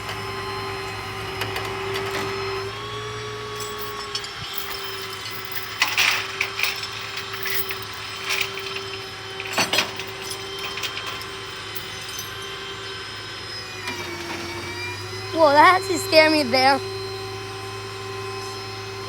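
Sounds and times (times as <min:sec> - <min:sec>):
hydraulics whining and humming: 0:00.0 - 0:19.0
metal clanks and creaks: 0:03.6 - 0:12.9.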